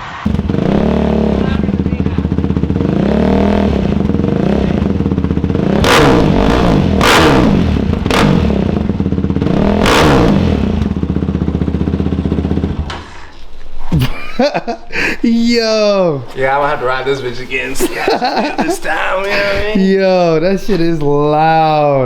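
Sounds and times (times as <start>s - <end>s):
quad engine revving: 0.2s - 12.9s.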